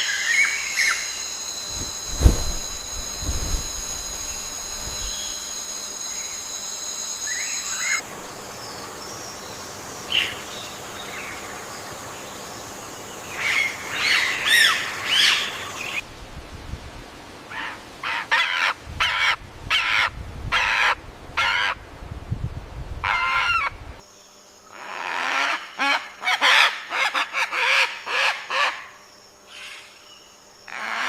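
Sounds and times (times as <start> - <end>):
steady high whine: 0.7 - 8.6.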